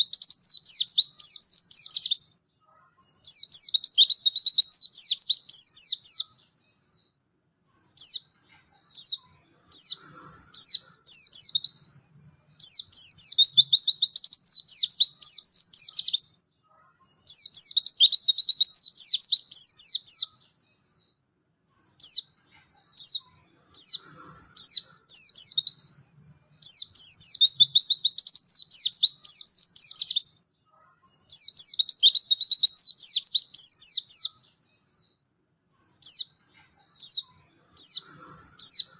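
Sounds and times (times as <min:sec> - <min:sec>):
bird twittering song: 0:00.0 - 0:38.9.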